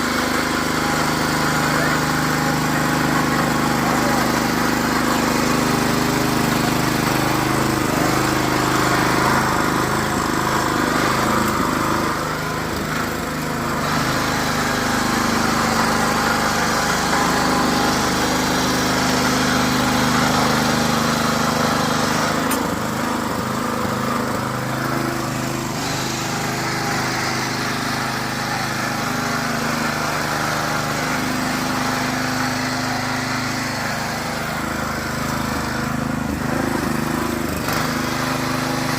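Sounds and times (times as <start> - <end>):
power tiller engine running: 0.0 - 38.9.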